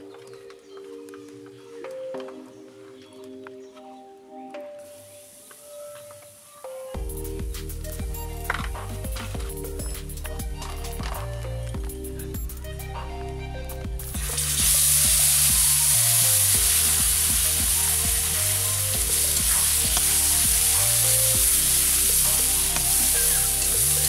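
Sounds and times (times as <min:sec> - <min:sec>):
greens sizzling in hot oil: 0:14.2 - 0:24.0.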